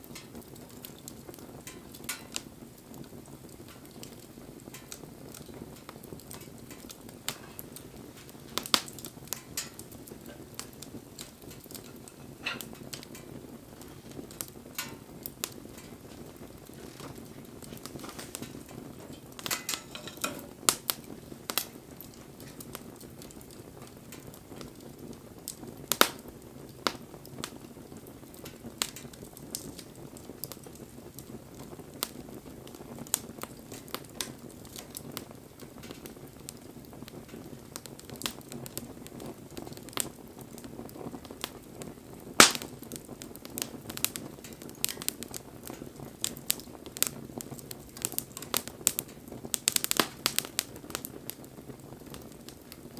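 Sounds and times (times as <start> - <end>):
rush of flame: 0.0 - 35.3
campfire crackling and popping: 0.0 - 52.9.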